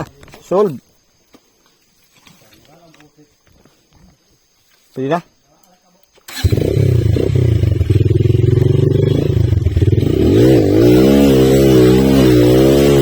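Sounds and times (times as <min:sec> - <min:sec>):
small motorcycle engine running: 0:06.3 - 0:13.0.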